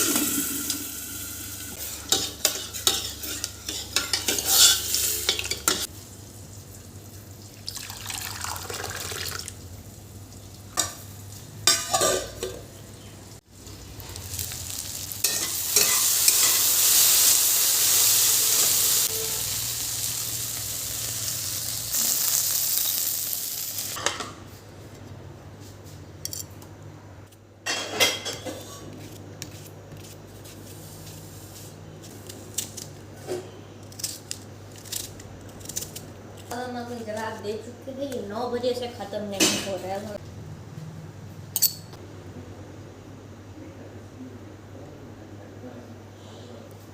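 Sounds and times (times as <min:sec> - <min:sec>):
food sizzling in hot oil: 0:00.0 - 0:12.1, 0:13.5 - 0:24.0
spoon scraping a cooking pan: 0:01.8 - 0:05.9, 0:15.2 - 0:17.0.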